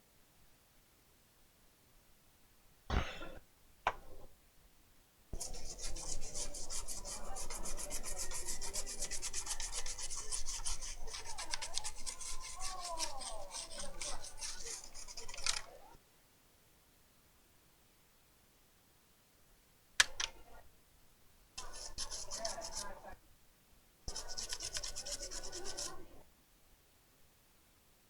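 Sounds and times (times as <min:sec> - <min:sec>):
scrubbing on a circuit board: 0:05.4 - 0:15.7, 0:21.6 - 0:23.1, 0:24.1 - 0:26.0.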